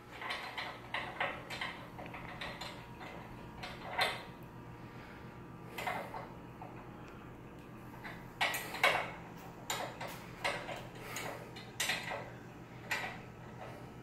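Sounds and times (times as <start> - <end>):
metal tools clicking and tapping: 9.7 - 13.2.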